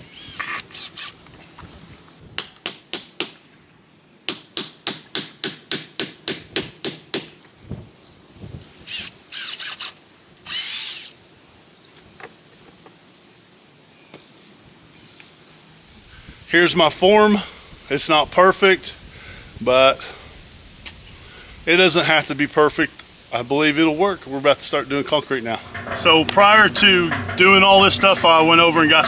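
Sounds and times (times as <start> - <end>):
power drill bursts: 0.0 - 1.2, 8.8 - 11.2.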